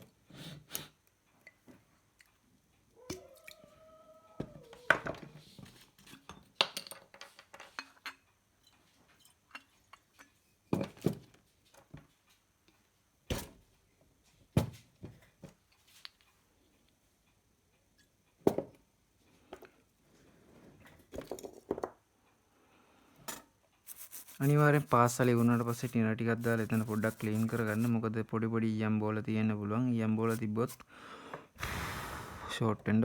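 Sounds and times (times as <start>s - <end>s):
small tools clinking and knocking: 6.0s - 11.1s.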